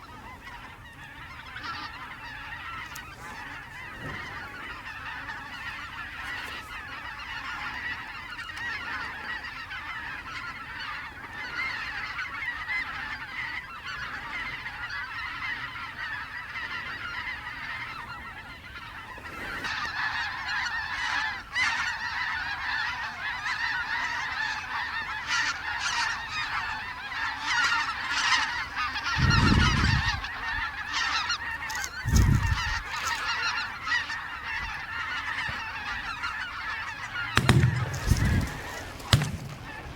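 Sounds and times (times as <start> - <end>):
geese honking: 0.0 - 39.9
low thumps: 37.3 - 39.9.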